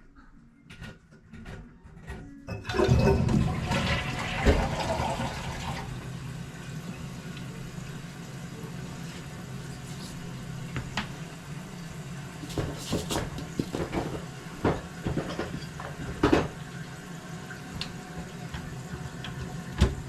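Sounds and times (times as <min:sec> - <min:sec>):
tank refilling with water: 0:02.5 - 0:20.0
toilet flushing: 0:02.5 - 0:20.0.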